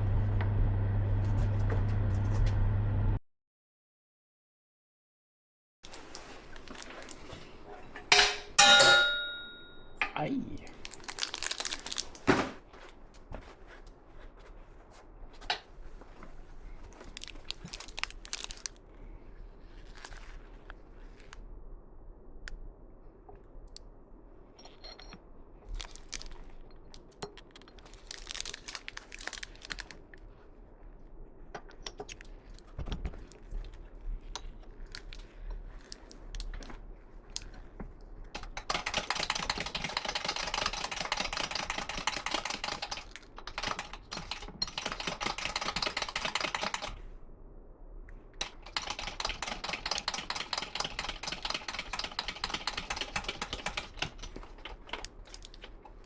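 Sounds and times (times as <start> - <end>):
clicks and knocks of parts handled: 5.9 - 13.5, 24.6 - 30.0, 38.4 - 47.0, 48.4 - 56.0
rapid mechanical clicking: 38.3 - 47.0, 48.4 - 55.6.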